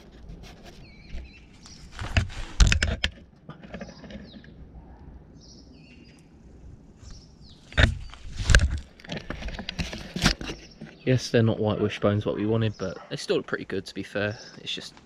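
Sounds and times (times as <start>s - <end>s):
birds chirping: 0.0s - 2.3s, 3.3s - 15.0s.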